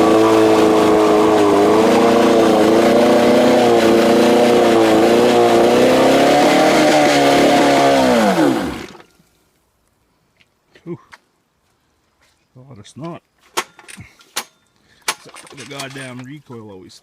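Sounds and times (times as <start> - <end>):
outboard two-stroke engine running: 0.0 - 9.0.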